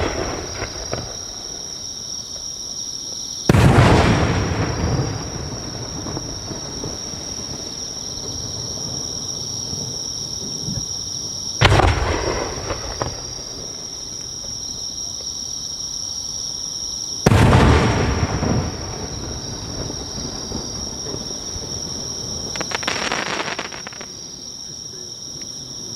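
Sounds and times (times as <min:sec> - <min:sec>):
firework shells booming: 0:00.0 - 0:02.5, 0:03.5 - 0:09.3, 0:11.6 - 0:14.8, 0:17.2 - 0:24.4.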